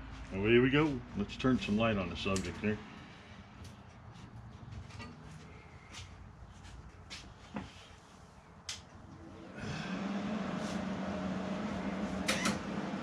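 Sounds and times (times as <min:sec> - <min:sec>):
cooling fan: 0:00.0 - 0:13.0
welder electrical hum: 0:08.6 - 0:13.0.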